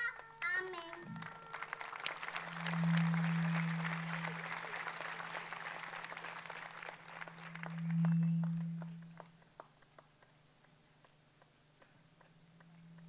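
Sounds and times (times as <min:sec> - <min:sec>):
audience applauding: 0:00.0 - 0:11.2
loud low hum: 0:01.0 - 0:09.6, 0:12.1 - 0:13.0.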